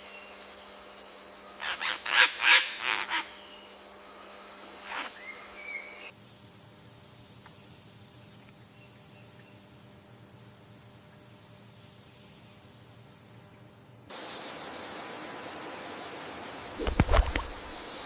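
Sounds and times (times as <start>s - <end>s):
jungle insect hum: 0.0s - 18.0s.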